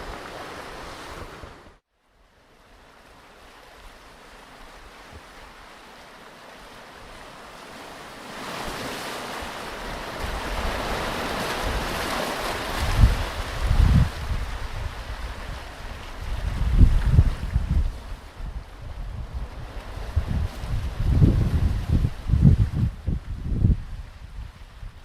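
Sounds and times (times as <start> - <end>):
ocean waves washing on beach: 0.0 - 25.0.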